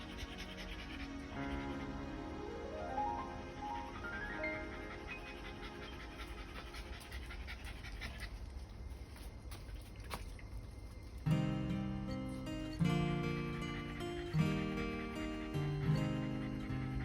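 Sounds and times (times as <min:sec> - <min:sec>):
dog panting: 0:00.0 - 0:02.4, 0:03.1 - 0:11.2, 0:12.1 - 0:17.0
music: 0:00.0 - 0:07.3, 0:11.3 - 0:17.0.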